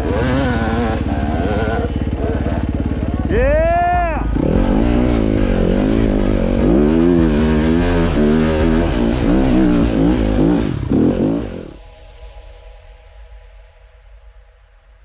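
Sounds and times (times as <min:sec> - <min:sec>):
dirt bike engine revving: 0:00.0 - 0:11.8.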